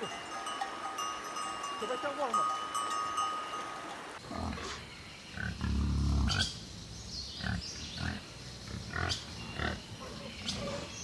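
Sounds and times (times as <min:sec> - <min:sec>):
wild boars grunting: 0:04.2 - 0:06.6, 0:07.3 - 0:11.0.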